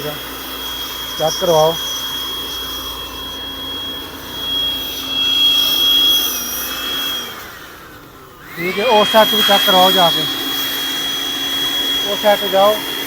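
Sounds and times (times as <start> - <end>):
electric blower motor whining: 0.0 - 13.0.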